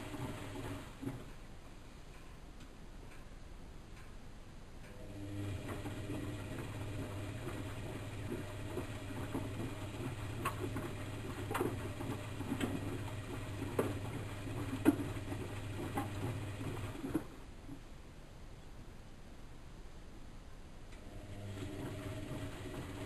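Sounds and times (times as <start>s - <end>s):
washing machine motor humming: 0.0s - 1.5s, 4.9s - 17.8s, 21.0s - 23.0s.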